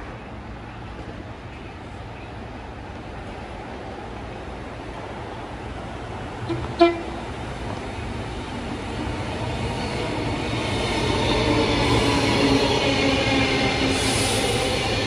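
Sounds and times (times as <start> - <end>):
train approaching: 0.0 - 15.0
train horn tooting: 6.5 - 7.2.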